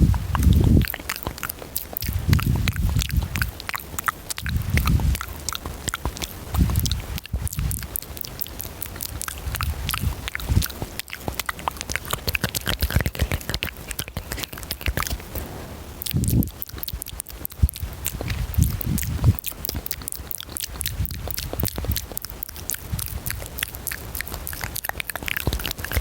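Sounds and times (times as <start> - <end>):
lip and tongue clicks: 0.0 - 26.0
breathing: 15.3 - 16.0.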